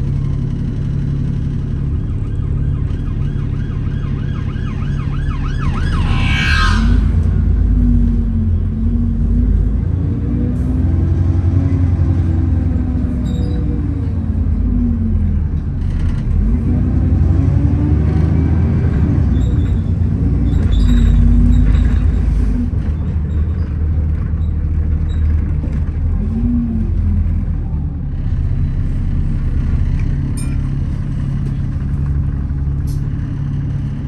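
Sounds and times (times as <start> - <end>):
loud axle whine: 0.0 - 16.6
bus engine and road rumble: 0.0 - 34.0.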